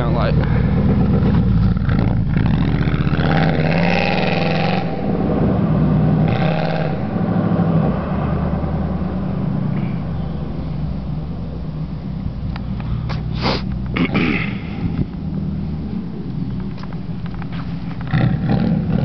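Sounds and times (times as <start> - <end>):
loud car engine under hard throttle: 0.0 - 19.0.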